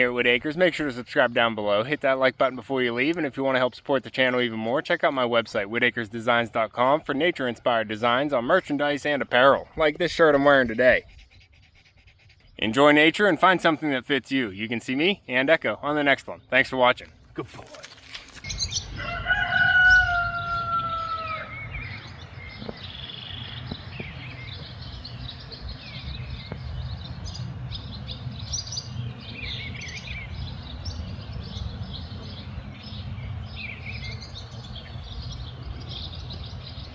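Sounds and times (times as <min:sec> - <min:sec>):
small birds chirping: 0:00.0 - 0:36.9
rooster crowing: 0:18.8 - 0:21.9
steady low rumble: 0:20.0 - 0:36.9.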